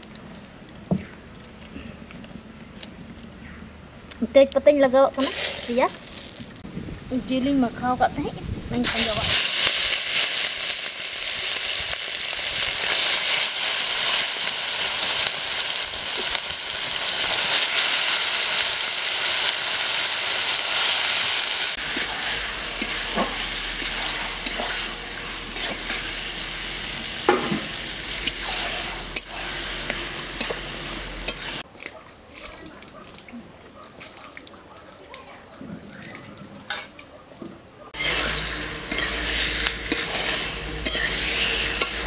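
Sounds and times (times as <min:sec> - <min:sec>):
chicken sizzling in hot oil: 0:05.2 - 0:06.6, 0:08.8 - 0:31.6, 0:38.0 - 0:42.0
metal spatula scraping pan: 0:21.8 - 0:26.2, 0:27.3 - 0:31.6, 0:38.0 - 0:42.0.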